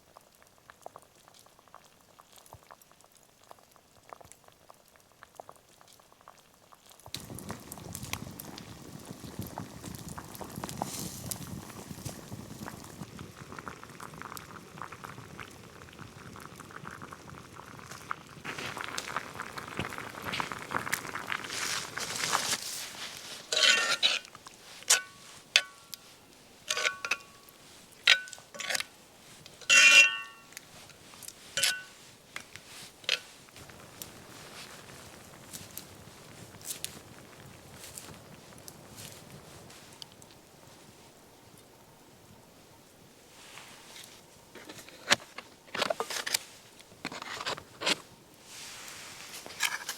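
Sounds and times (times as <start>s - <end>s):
pot of liquid bubbling: 0.0s - 49.9s
metal cookware clinking: 23.5s - 26.0s, 26.7s - 27.5s, 28.1s - 28.9s, 29.6s - 30.6s, 31.6s - 32.0s.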